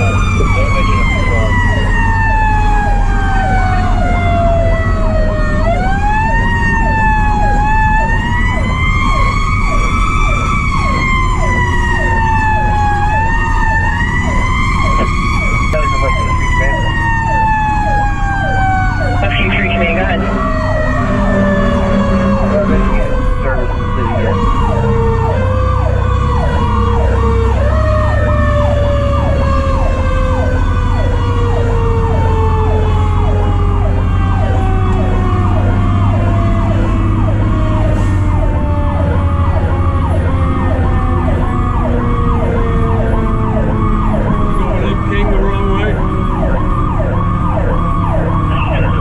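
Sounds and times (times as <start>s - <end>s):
truck engine running: 0.0s - 26.9s
mechanical siren wail: 0.0s - 49.0s.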